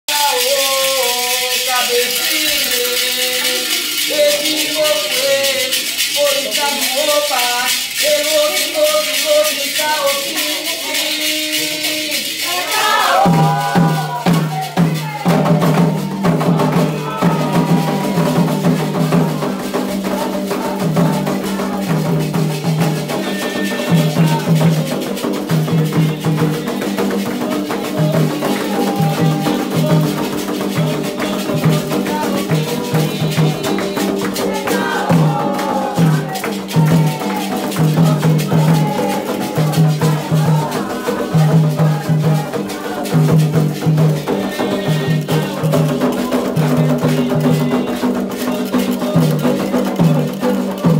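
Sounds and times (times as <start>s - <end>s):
rattle shaking: 0.1s - 50.9s
voices singing: 0.1s - 50.9s
drums beating: 12.5s - 50.9s.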